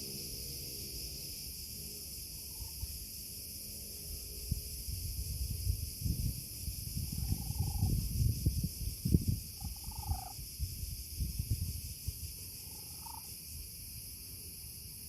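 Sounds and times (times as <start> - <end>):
high-pitched insect chirring: 6.0 - 14.1.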